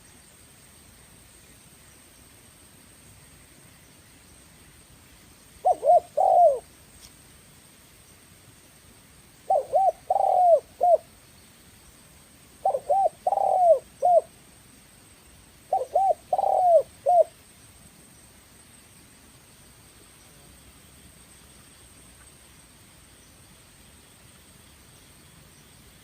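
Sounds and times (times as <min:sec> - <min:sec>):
dove cooing: 0:05.6 - 0:06.7, 0:09.5 - 0:11.1, 0:12.6 - 0:14.3, 0:15.7 - 0:17.4.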